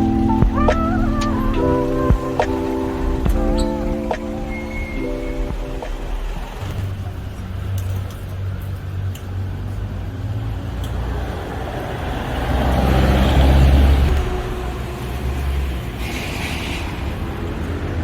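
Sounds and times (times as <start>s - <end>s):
traffic engine rumble: 0.0s - 18.0s
vehicle passing: 0.0s - 18.0s.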